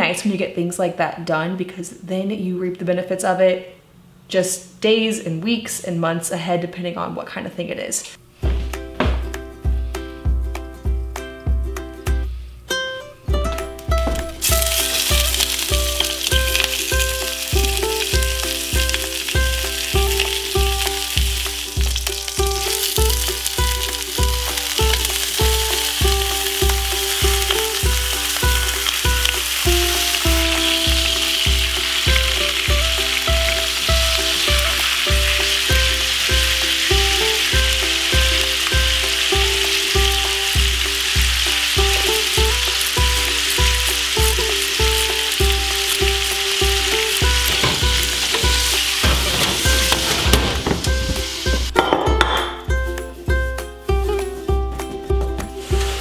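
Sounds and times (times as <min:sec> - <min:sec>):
background music with a beat: 0:08.4 - 0:56.0
chicken sizzling in a skillet: 0:14.4 - 0:51.8, 0:55.4 - 0:56.0.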